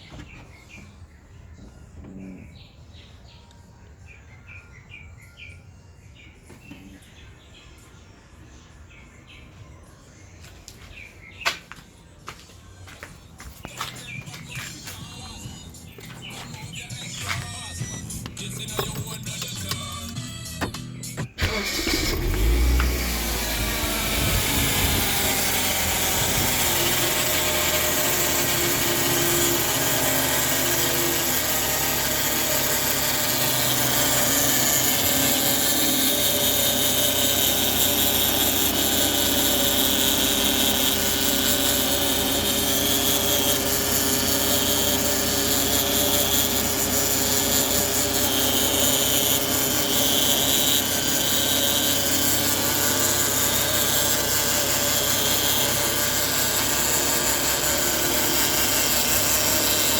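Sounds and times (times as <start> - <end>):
vehicle running noise: 10.4 - 59.9
transmission whining: 13.6 - 59.9.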